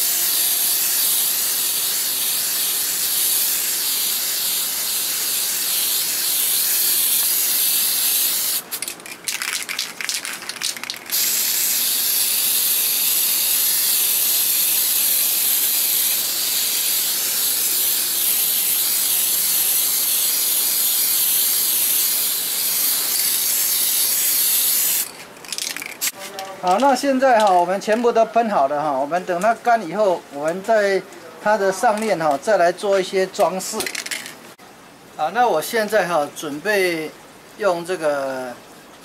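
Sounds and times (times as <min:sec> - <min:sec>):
spray paint can hissing: 0:00.0 - 0:26.2.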